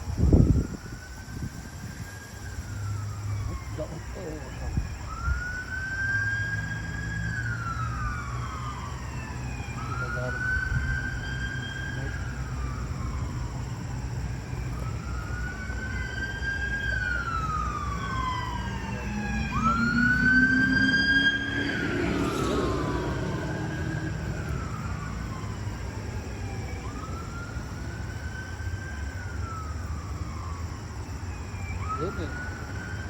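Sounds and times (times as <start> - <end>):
emergency vehicle sirens wailing: 0.0 - 33.0
low rising drone: 5.0 - 27.6.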